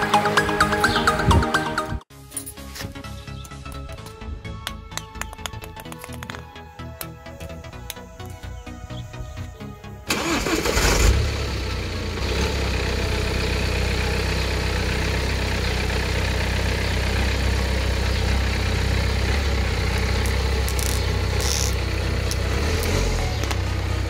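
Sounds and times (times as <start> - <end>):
music: 0.0 - 11.6, 21.5 - 24.0
car engine starting and idling: 9.4 - 24.0.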